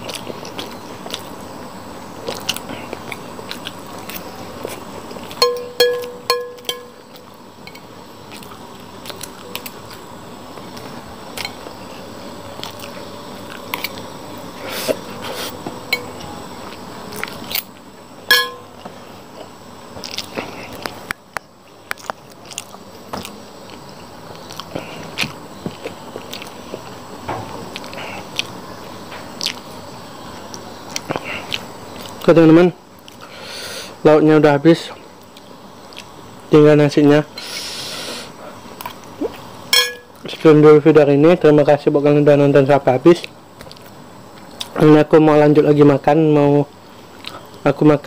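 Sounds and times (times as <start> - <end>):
person chewing: 0.0 - 1.3, 2.2 - 7.4, 8.3 - 10.0, 12.6 - 17.7, 18.6 - 21.0, 21.7 - 27.0, 27.7 - 28.6, 29.4 - 29.7, 30.9 - 32.2
spoon clinking on plate: 5.4 - 7.0, 18.3 - 18.7, 39.8 - 40.1.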